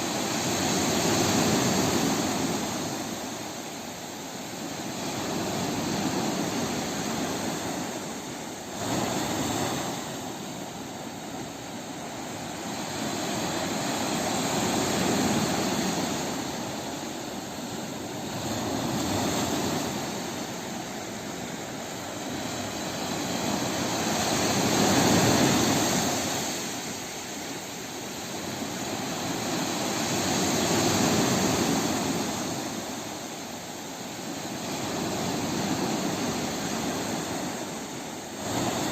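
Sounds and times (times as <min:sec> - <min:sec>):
sea waves washing in: 0:00.0 - 0:38.9
wave breaking: 0:04.9 - 0:27.8.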